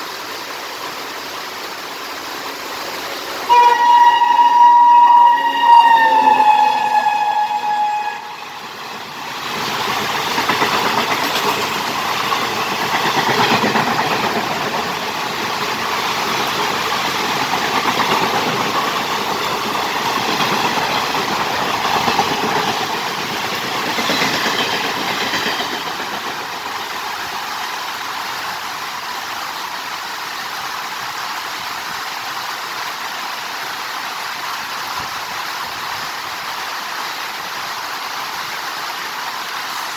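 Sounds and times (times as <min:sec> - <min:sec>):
heavy rain hiss: 0:00.0 - 0:39.9
train passing with rushing clatter: 0:00.0 - 0:39.9
train horn: 0:03.5 - 0:08.8.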